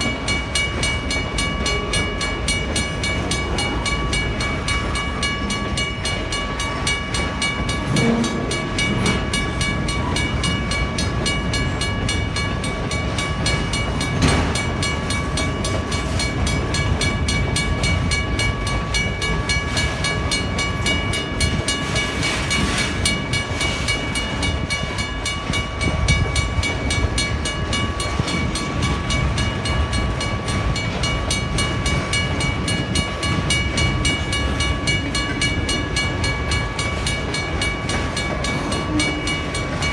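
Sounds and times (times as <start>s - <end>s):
railway crossing bell ringing: 0.0s - 39.9s
train wheels on rails: 0.0s - 39.9s.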